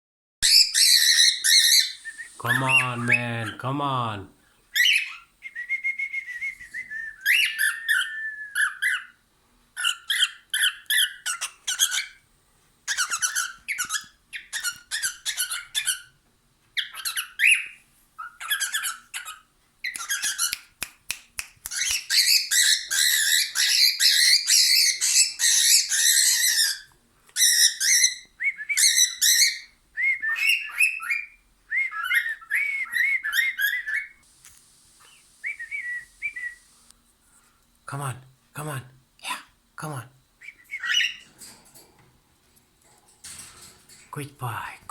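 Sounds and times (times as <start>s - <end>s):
pet bird chattering and squawking: 0.4s - 2.0s, 9.8s - 12.2s, 12.9s - 16.1s, 18.2s - 20.6s, 21.7s - 28.2s
short whistled notes: 1.8s - 2.7s.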